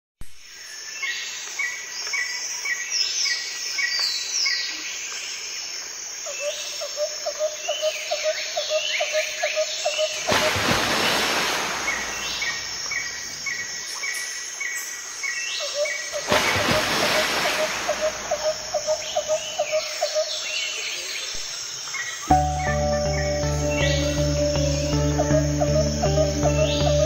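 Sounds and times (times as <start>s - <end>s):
birds chirping and singing: 22.3s - 27.0s.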